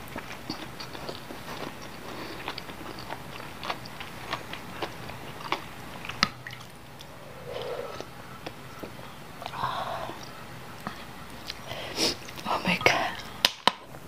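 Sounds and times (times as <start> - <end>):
wet chewing mouth clicks: 0.0 - 12.4
soft breathy sound: 7.1 - 8.0, 9.4 - 10.3.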